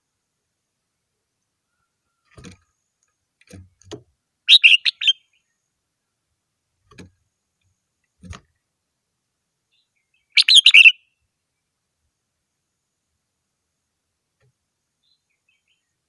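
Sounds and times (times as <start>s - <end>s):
bird chirping phrase: 4.5s - 5.5s, 9.8s - 11.1s.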